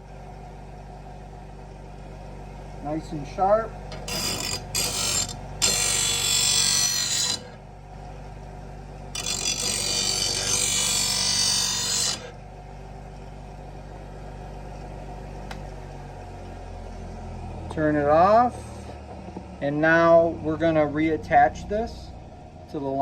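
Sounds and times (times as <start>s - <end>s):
grinder motor humming: 2.9s - 7.8s, 8.8s - 22.4s
blade grinding on grinding wheel: 3.9s - 7.6s, 9.1s - 12.4s.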